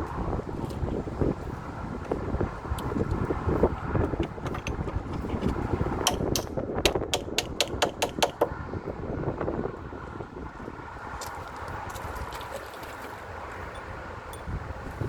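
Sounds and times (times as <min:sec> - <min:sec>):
wind noise on microphone: 0:00.0 - 0:15.0
sharp knocks: 0:04.1 - 0:08.6.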